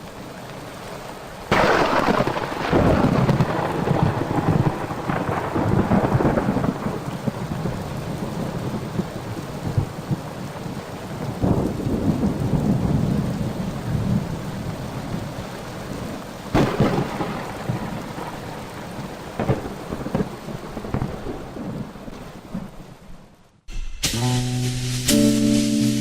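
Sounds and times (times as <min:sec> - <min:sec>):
steady rain: 0:00.0 - 0:26.0
sharp thunderclap: 0:01.5 - 0:08.3, 0:16.6 - 0:18.5, 0:19.4 - 0:21.8
rolling thunder: 0:01.5 - 0:10.2, 0:11.2 - 0:14.5, 0:16.5 - 0:22.8.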